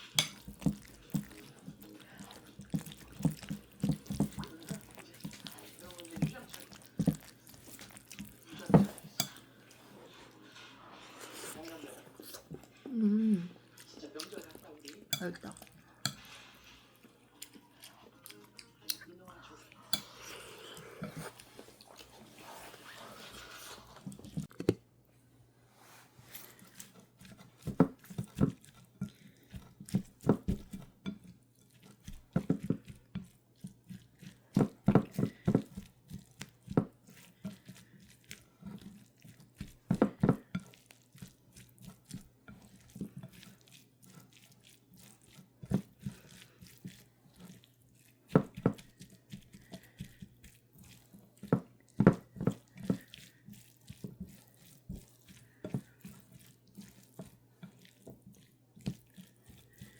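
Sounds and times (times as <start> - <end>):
dishes and utensils clinking: 0.0 - 10.7, 15.1 - 21.5.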